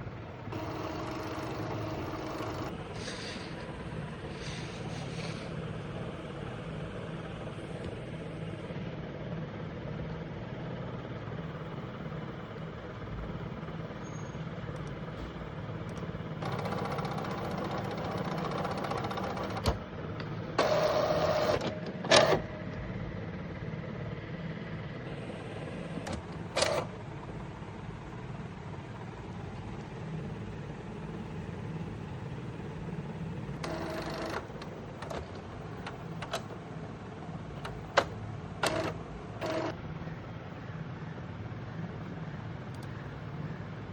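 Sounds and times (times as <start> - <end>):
printer motor whirring: 0.0 - 8.8, 14.4 - 23.0, 25.0 - 30.0, 33.4 - 40.2
printer clicks: 0.5 - 2.8, 15.9 - 19.8, 20.6 - 22.5, 25.9 - 27.0, 33.6 - 36.7, 37.6 - 39.8.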